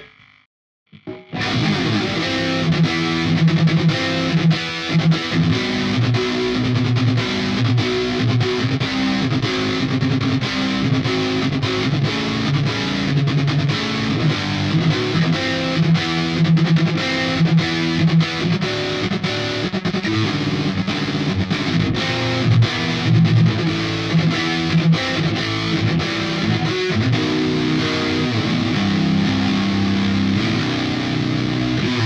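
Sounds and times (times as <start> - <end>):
distorted electric guitar riff: 0.0 - 32.0.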